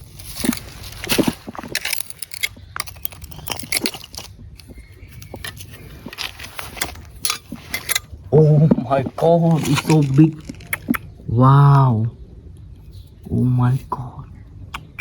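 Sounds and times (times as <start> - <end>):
hands rustling through leaf litter: 0.0 - 2.5.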